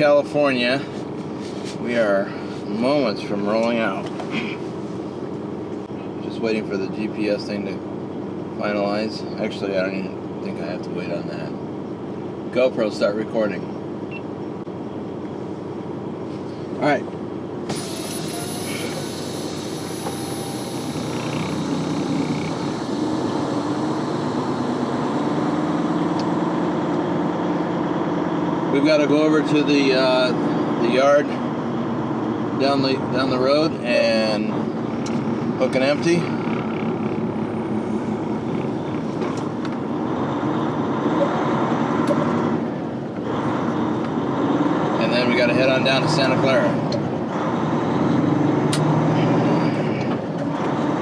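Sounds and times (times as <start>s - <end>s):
diesel truck engine droning: 0.0s - 51.0s.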